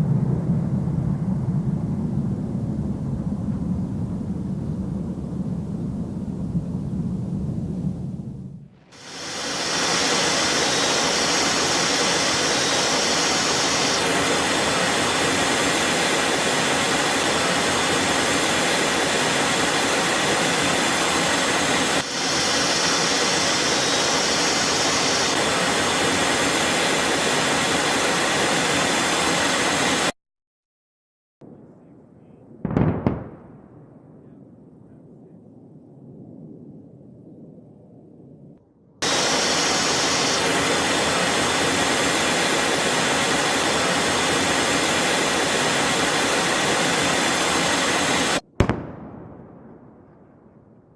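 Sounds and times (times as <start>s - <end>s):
jet engine roar: 0.0s - 30.2s, 39.0s - 49.4s.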